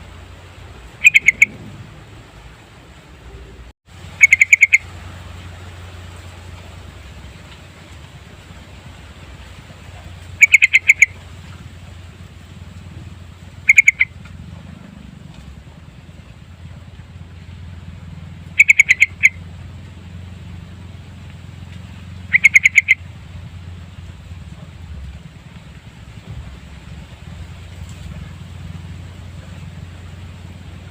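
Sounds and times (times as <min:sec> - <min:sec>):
bird singing clipped notes: 0:01.0 - 0:01.7, 0:04.2 - 0:04.8, 0:21.7 - 0:23.0.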